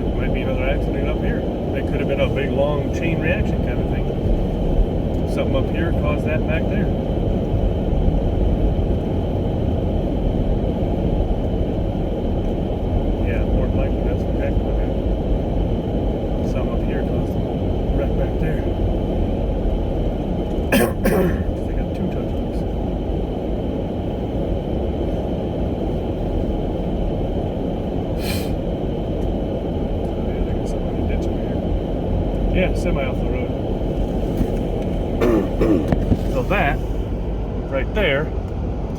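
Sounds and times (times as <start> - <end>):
car interior driving rumble: 0.0 - 38.9
brief hiss: 28.2 - 28.6.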